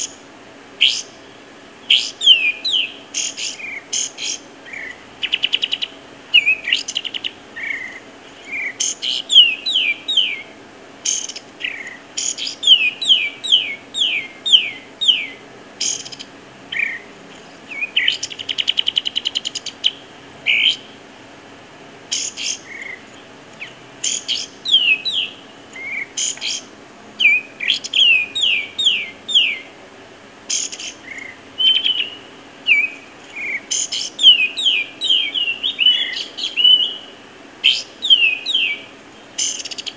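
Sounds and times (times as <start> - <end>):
bird trill: 0.0 - 21.5, 22.1 - 29.8, 30.5 - 39.9
songbirds singing: 0.0 - 39.9.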